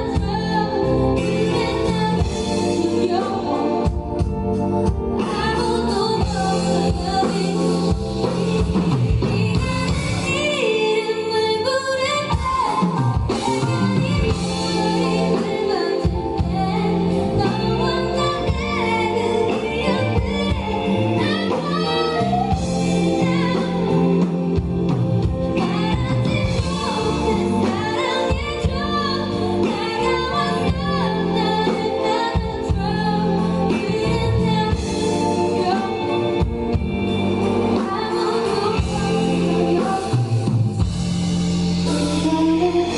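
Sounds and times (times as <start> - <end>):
lead vocalist singing: 0.0 - 41.0, 41.8 - 42.9
live band playing pop: 0.0 - 42.9.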